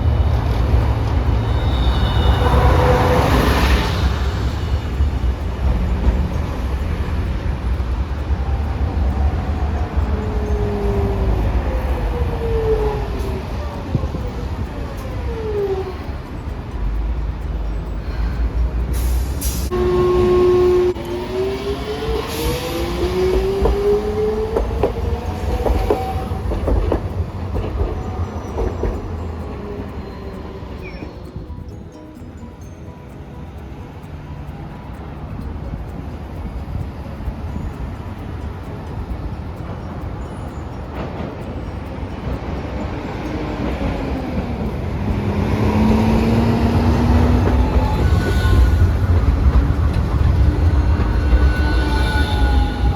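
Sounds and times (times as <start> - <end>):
streetcar horn tone: 0.0 - 9.1, 19.5 - 29.0, 45.0 - 52.9
traction motor whine: 0.0 - 32.4
wheels clicking over rail joints: 0.0 - 52.9.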